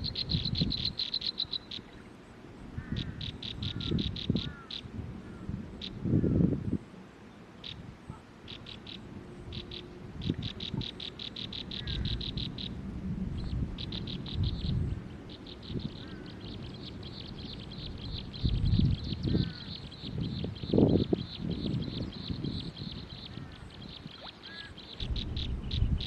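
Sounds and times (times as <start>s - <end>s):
small bird chirping: 0.0s - 2.0s, 8.5s - 12.8s, 13.4s - 26.0s.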